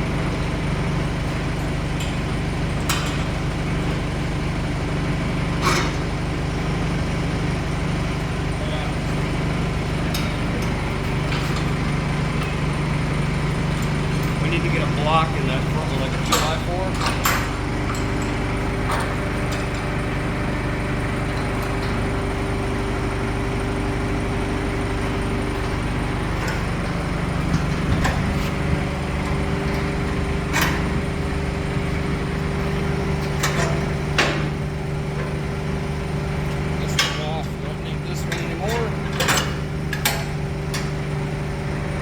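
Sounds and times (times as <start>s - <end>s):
motor humming: 0.0s - 42.0s
short knocks and clanks: 9.9s - 20.3s, 24.0s - 35.5s, 36.4s - 41.0s.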